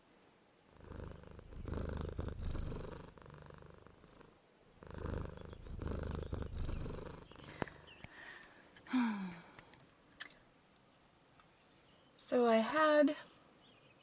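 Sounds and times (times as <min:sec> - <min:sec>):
cat purring: 0:00.7 - 0:08.1.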